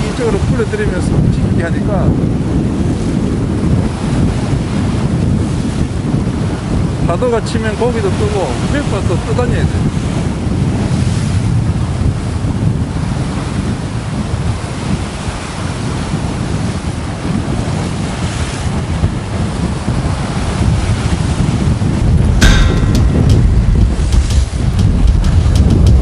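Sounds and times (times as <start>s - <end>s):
strong wind buffeting microphone: 0.0s - 26.0s
waves breaking against rocks: 2.2s - 26.0s
sharp knock: 22.4s - 26.0s.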